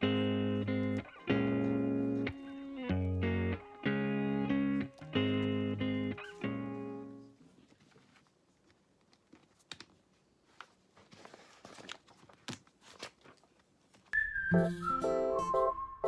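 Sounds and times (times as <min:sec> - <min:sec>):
guitar music: 0:00.0 - 0:07.3, 0:14.2 - 0:15.8
soft rustle: 0:07.3 - 0:14.1.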